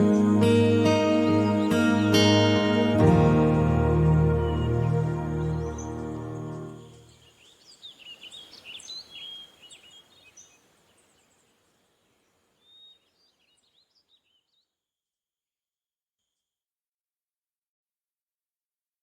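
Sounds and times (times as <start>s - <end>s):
music: 0.0s - 7.1s
birds chirping: 0.0s - 14.6s.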